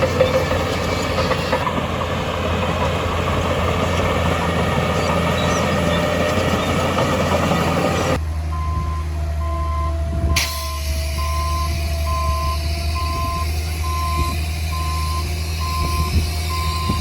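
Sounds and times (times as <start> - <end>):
rough rattle: 0.0 - 7.8
construction machinery diesel engine: 0.0 - 17.0.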